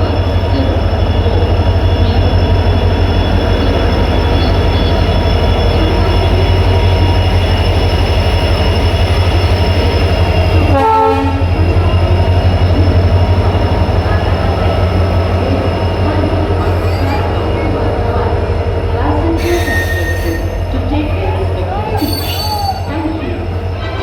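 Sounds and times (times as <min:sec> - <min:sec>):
locomotive engine pulsing hum: 0:00.0 - 0:24.0
train horn blast: 0:10.7 - 0:11.5.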